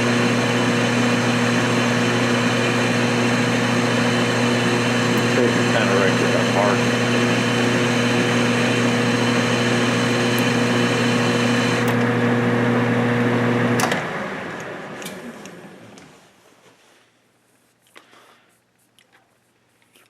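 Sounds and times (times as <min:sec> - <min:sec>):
metal lathe running: 0:00.0 - 0:13.9
lathe winding down: 0:00.0 - 0:15.8.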